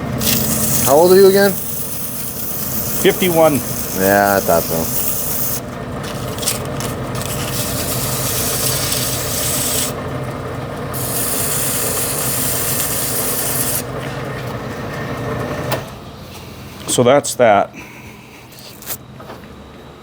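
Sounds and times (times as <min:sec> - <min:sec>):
lathe motor hum: 0:00.0 - 0:16.9
cutting bit scraping hiss: 0:00.2 - 0:10.0, 0:11.0 - 0:13.9.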